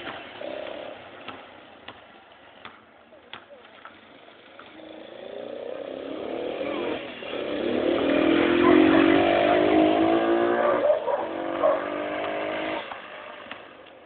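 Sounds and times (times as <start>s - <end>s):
mini motorcycle engine revving: 4.2s - 13.7s.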